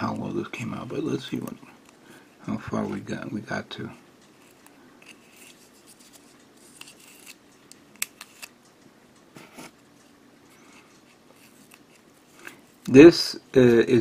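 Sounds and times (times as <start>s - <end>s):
tape scratching and rubbing: 4.4s - 7.4s.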